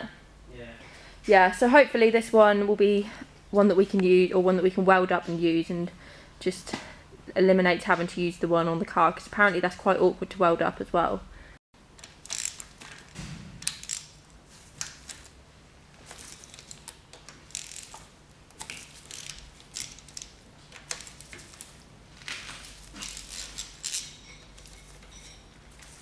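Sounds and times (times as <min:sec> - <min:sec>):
ratchet spanner clicking: 0:12.2 - 0:14.2, 0:17.5 - 0:17.9
metal hand tools scraping: 0:22.8 - 0:26.0.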